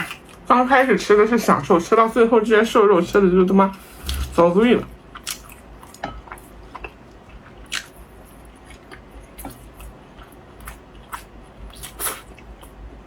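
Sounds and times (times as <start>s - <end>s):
person chewing meat: 0.0s - 0.5s, 3.8s - 13.0s.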